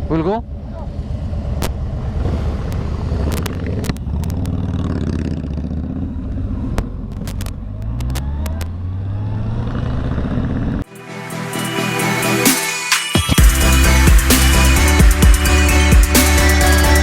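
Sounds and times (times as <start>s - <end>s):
motorcycle engine accelerating: 0.0s - 10.9s
sharp clicks and knocks: 6.7s - 8.8s.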